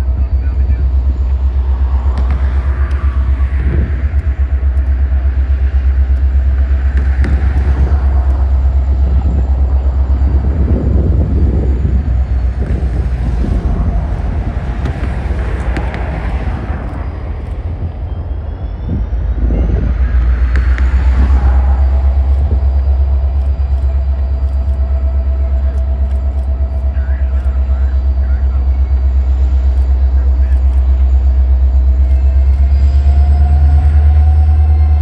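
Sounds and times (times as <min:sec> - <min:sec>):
train rumbling past: 0:00.0 - 0:35.0.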